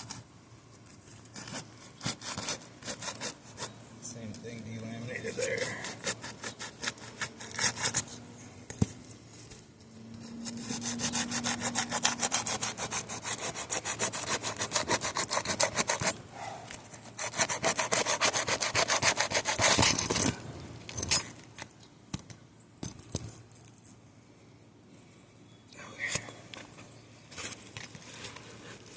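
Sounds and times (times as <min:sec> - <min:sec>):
flat bar scraping under shingles: 0:00.8 - 0:03.8, 0:05.2 - 0:21.5.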